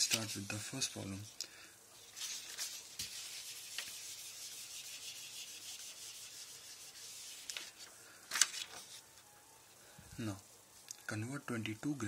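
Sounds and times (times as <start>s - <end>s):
scratchy writing strokes: 2.0s - 7.9s.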